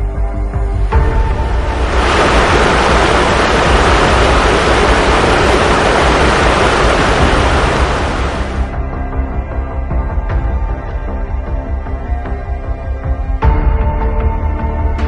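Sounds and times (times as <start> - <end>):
rushing water: 0.8 - 8.8.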